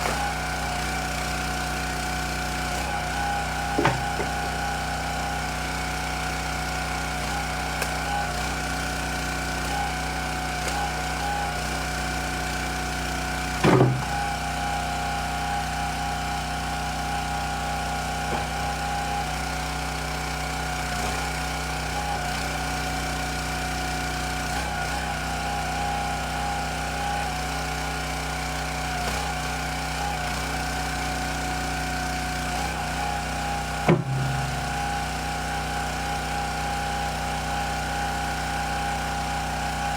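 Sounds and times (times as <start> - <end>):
small gasoline engine running: 0.0 - 39.9
sharp loud knock: 33.9 - 35.0.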